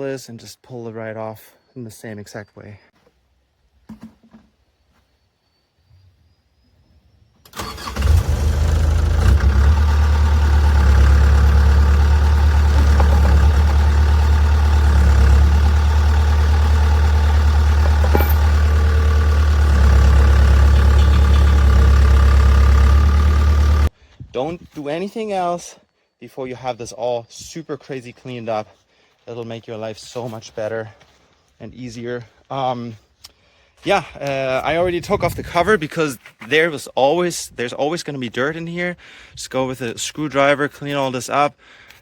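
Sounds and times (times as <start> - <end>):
excavator diesel engine droning: 7.6 - 23.9.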